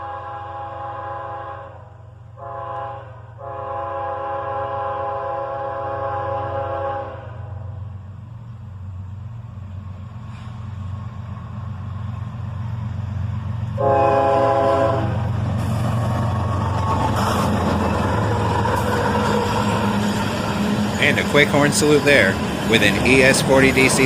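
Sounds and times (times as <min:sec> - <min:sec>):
train air horn blast: 0:00.0 - 0:07.8, 0:13.8 - 0:15.3
diesel locomotive rumbling: 0:00.0 - 0:24.0
train wheels passing: 0:05.9 - 0:24.0.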